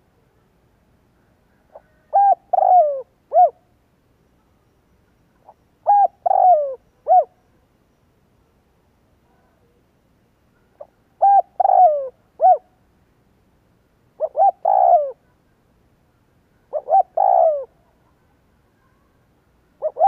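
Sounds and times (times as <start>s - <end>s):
dove cooing: 1.6s - 3.6s, 5.4s - 7.4s, 10.8s - 12.7s, 14.2s - 15.3s, 16.7s - 17.9s, 19.8s - 20.0s.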